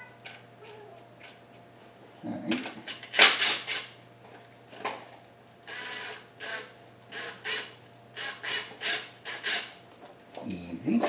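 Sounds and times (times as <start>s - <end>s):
tools clicking and rattling: 2.6s - 4.0s.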